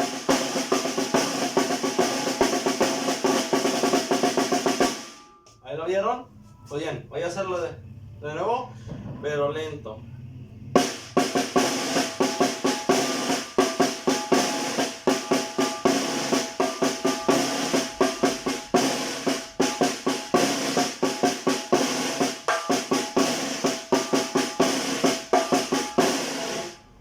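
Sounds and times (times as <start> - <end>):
snare drum rhythm: 0.0 - 5.2, 10.8 - 26.8.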